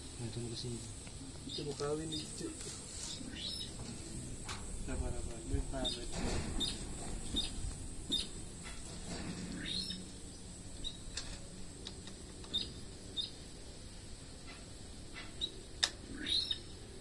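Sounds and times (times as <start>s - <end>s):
small birds chirping: 0.0s - 17.0s
sharp click: 15.2s - 16.0s.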